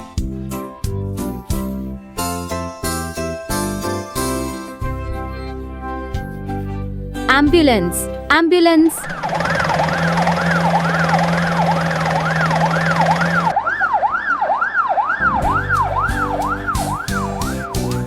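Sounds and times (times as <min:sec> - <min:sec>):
music: 0:00.0 - 0:09.0, 0:15.2 - 0:18.0
ambulance siren wailing: 0:09.0 - 0:18.0.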